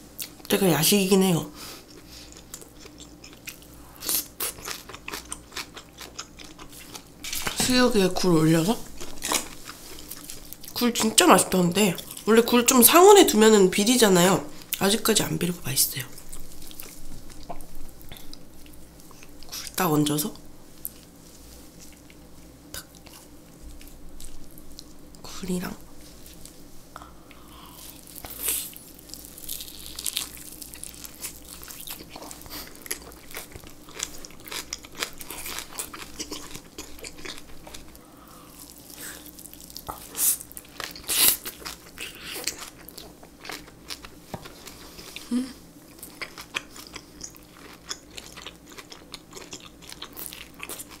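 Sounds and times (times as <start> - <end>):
chewing with wet crunches: 1.8 - 7.6, 27.3 - 45.3, 45.9 - 51.0.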